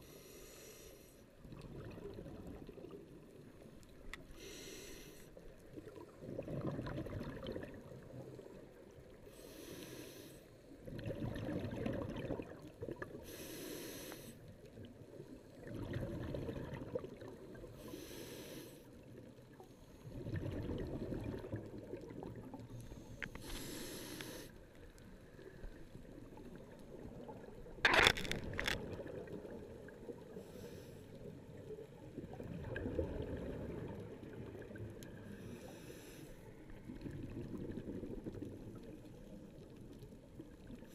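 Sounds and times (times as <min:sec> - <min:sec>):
regulator breathing hiss: 0:00.0 - 0:01.2, 0:04.4 - 0:05.3, 0:09.4 - 0:10.5, 0:13.2 - 0:14.4, 0:17.8 - 0:18.9, 0:23.0 - 0:24.6, 0:35.3 - 0:36.4
exhaled bubbles rushing: 0:01.5 - 0:03.0, 0:05.9 - 0:08.2, 0:10.8 - 0:13.1, 0:15.6 - 0:17.6, 0:20.1 - 0:22.7, 0:32.1 - 0:34.9, 0:36.8 - 0:39.0.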